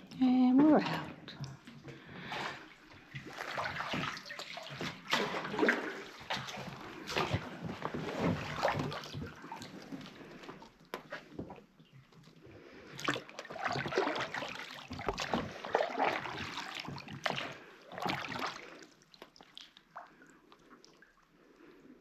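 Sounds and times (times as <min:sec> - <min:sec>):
water lapping: 0:00.5 - 0:22.0
paddle splashing water: 0:00.7 - 0:11.7, 0:12.5 - 0:21.1.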